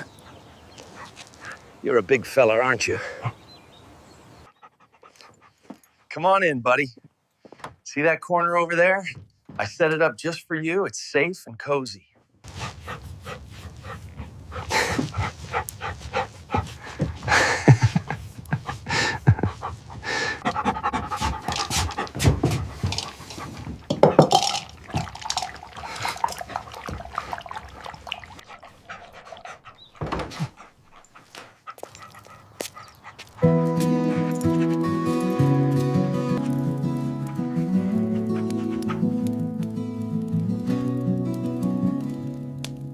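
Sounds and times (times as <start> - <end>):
large dog panting: 0.0 - 1.7, 4.3 - 6.1, 12.5 - 24.0, 24.8 - 35.6, 37.3 - 39.6.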